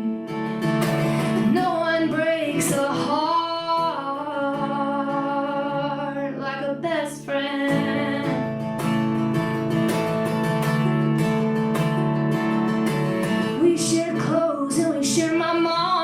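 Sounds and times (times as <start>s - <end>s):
strummed acoustic guitar: 0.0s - 16.0s
woman singing: 1.0s - 8.6s, 13.5s - 16.0s.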